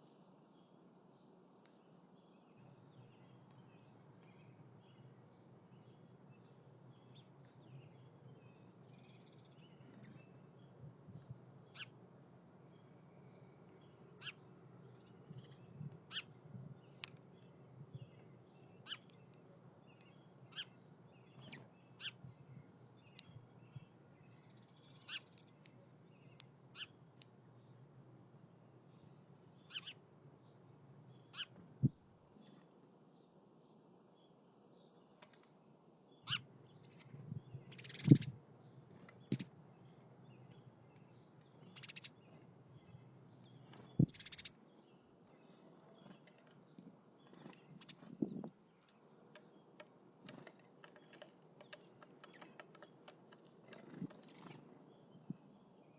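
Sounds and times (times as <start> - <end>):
bird chip calls: 14.1 - 16.3, 18.8 - 19.4, 24.3 - 27.0, 29.6 - 30.0, 31.2 - 31.6, 36.2 - 37.1, 37.7 - 38.4, 41.6 - 42.4, 43.8 - 44.6.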